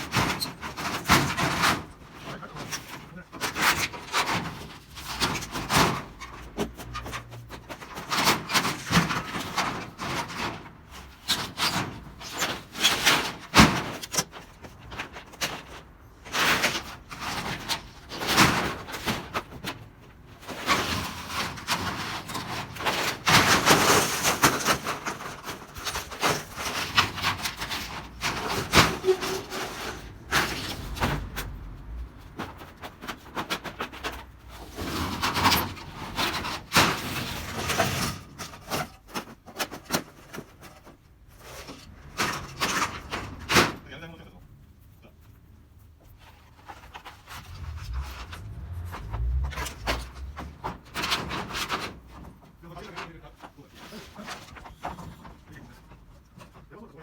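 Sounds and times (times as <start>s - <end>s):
metal roofing sheets clattering: 0.0s - 44.3s, 46.1s - 57.0s
metal sheets scraping: 20.5s - 31.5s, 46.2s - 52.5s.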